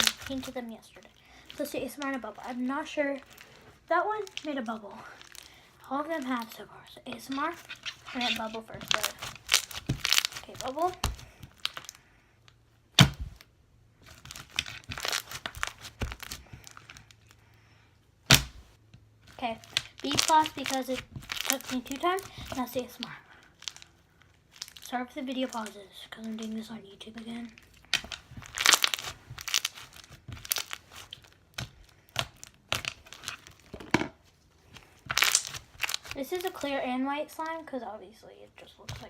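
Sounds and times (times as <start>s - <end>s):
slime squishing and crackling: 0.0s - 12.1s, 12.9s - 17.4s, 18.3s - 33.9s, 34.6s - 37.6s, 38.6s - 39.0s.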